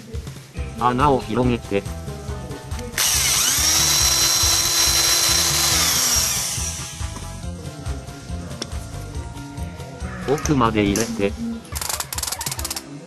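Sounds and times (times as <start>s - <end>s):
small electric drill running: 3.0s - 7.1s.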